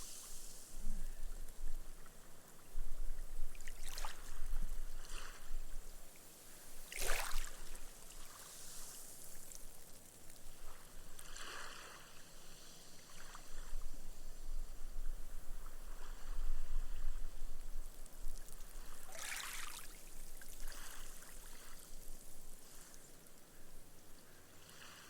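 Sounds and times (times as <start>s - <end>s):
sea waves washing on sand: 0.0s - 0.8s, 6.8s - 13.8s, 17.9s - 23.4s.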